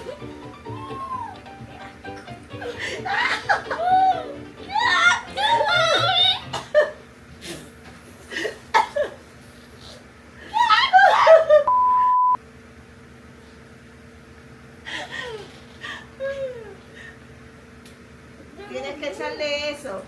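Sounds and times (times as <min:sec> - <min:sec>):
people laughing and exclaiming: 0:00.0 - 0:01.5, 0:02.6 - 0:06.4, 0:10.5 - 0:11.7
faint steady hum: 0:00.0 - 0:20.0
censor bleep tone: 0:11.7 - 0:12.4.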